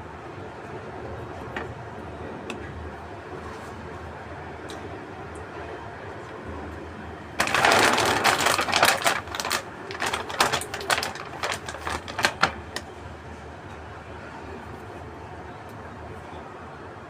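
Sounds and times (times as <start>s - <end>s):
plastic wrapper crinkling: 7.4s - 12.8s.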